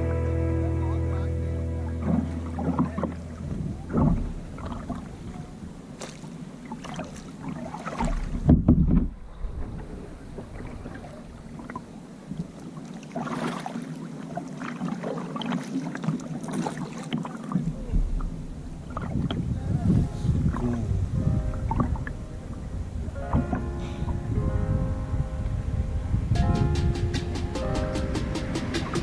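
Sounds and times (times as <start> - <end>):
background music: 0.0 - 4.6, 19.4 - 29.0
low bump: 0.0 - 6.0, 26.4 - 29.0
kayak paddle strokes splashing: 1.9 - 8.6, 9.2 - 20.6
wind on microphone: 2.0 - 12.6, 17.6 - 29.0.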